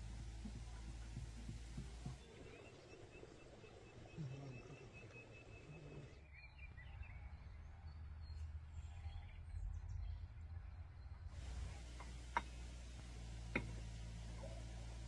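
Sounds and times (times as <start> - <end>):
steady low rumble: 0.0 - 2.6
faint bird chirps: 0.0 - 12.6.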